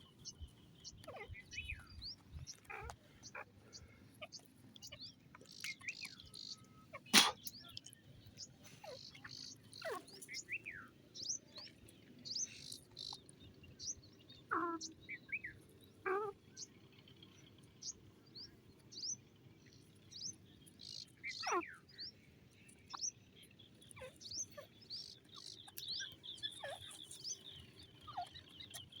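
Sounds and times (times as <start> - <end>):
loud falling bird calls: 6.9 - 7.6.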